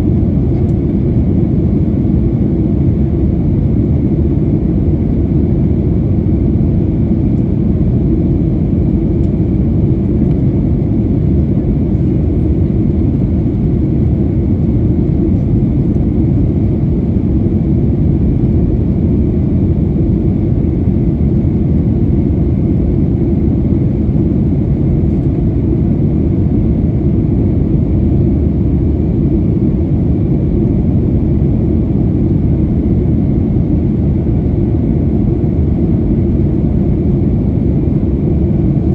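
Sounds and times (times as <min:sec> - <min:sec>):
airplane cabin engine roar: 0:00.0 - 0:38.9.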